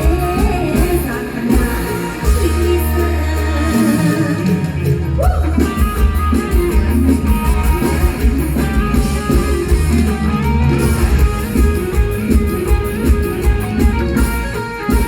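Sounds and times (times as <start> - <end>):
guitar: 0.0 - 15.0
pulsing bass beat: 4.8 - 15.0.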